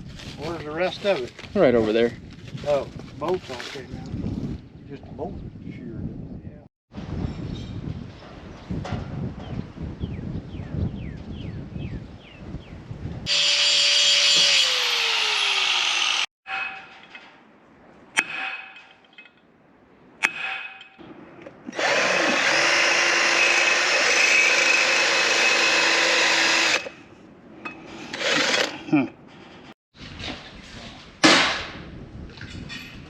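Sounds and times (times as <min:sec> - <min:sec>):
handheld power tool running: 0:13.3 - 0:16.3, 0:21.7 - 0:26.9, 0:28.2 - 0:28.7.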